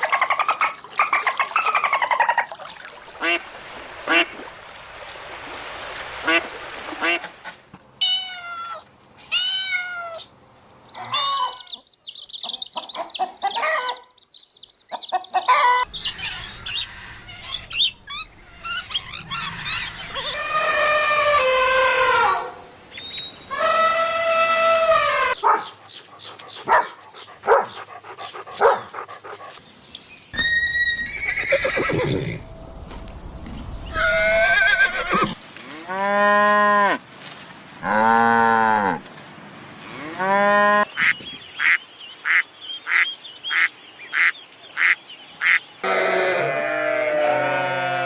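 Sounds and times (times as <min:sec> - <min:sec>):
farm animal calls: 0:10.9 - 0:14.2, 0:14.9 - 0:29.6.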